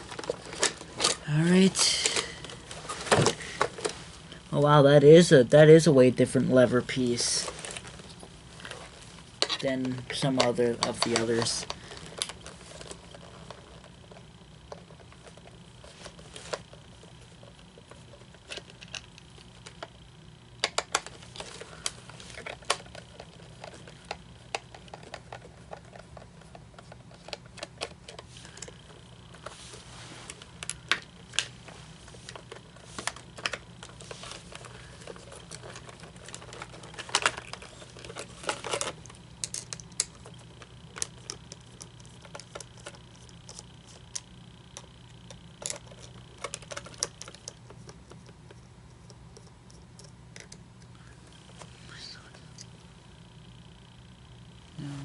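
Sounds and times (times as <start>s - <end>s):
low steady hum: 0.0s - 55.0s
plastic parts clicking: 32.2s - 50.9s.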